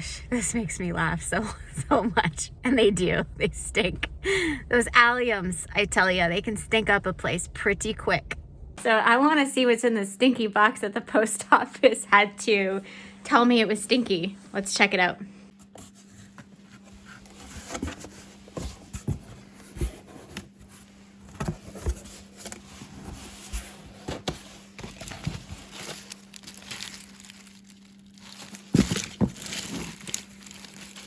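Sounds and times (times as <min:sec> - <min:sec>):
cardboard crinkling and tearing: 0:24.2 - 0:31.0.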